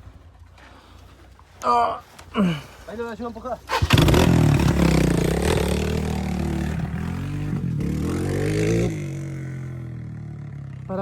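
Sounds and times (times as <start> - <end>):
dirt bike engine revving: 3.7 - 11.0.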